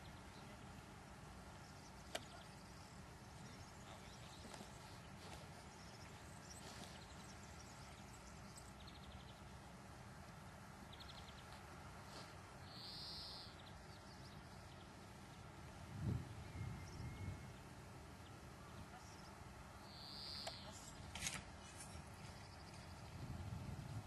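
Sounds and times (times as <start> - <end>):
faint bird twitters: 12.6 - 13.8, 18.8 - 21.1.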